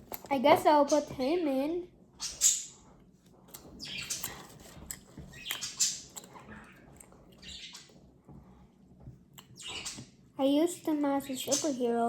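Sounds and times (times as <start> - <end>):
plastic toys rustling and scraping: 2.2 - 8.7.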